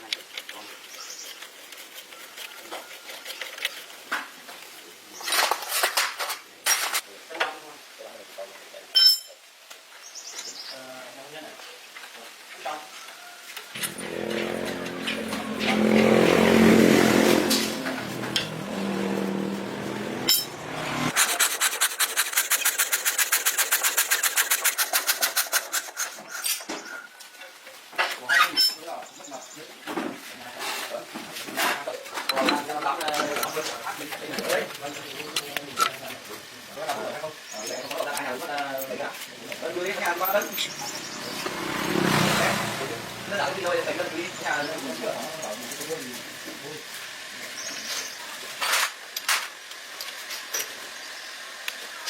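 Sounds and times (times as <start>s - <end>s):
rapid rasping scraping strokes: 0.1s - 4.5s, 13.8s - 26.6s
metal clinking and scraping: 13.8s - 21.4s.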